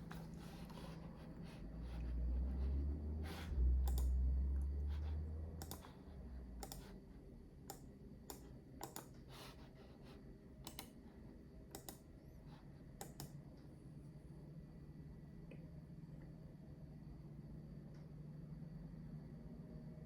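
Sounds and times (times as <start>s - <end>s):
mouse and keyboard clicks: 5.6s - 5.9s, 6.6s - 6.9s, 7.7s - 9.2s, 10.6s - 11.0s, 11.7s - 12.0s.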